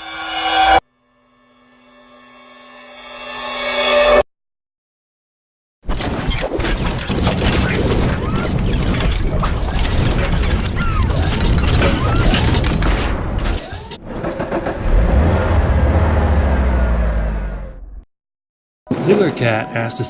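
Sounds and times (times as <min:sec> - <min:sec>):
crashing smashing hits: 0:06.7 - 0:15.8
deep booming rumble: 0:14.0 - 0:18.0.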